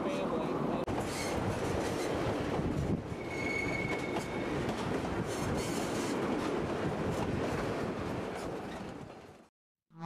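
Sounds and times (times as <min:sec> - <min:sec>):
train wheels rumbling on rail: 0:00.1 - 0:09.5
train wheel squeal: 0:01.0 - 0:02.2, 0:03.1 - 0:04.6, 0:05.3 - 0:06.2.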